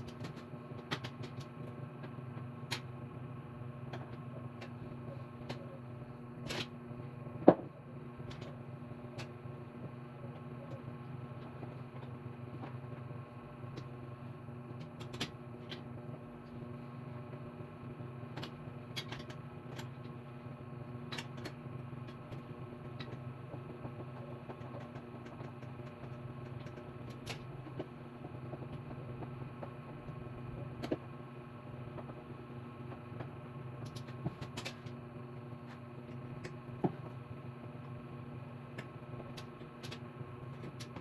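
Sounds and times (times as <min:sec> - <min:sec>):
steady low hum: 0:00.0 - 0:41.0
tools and parts clicking: 0:18.4 - 0:19.9.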